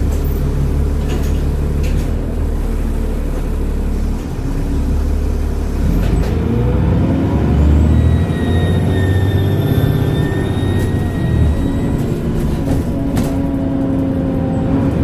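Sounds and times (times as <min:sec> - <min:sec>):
bus diesel engine running: 0:00.0 - 0:15.0
rising engine whine: 0:04.6 - 0:15.0.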